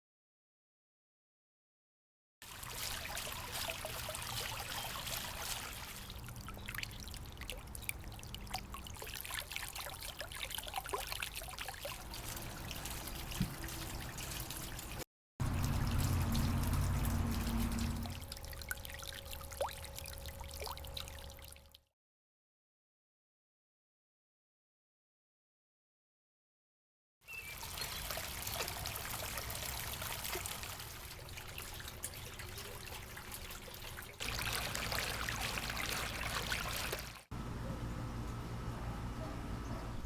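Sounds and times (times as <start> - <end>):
water trickling over rocks: 2.4 - 21.8, 27.4 - 37.3
water drips and plinks: 2.5 - 21.8, 27.4 - 37.3.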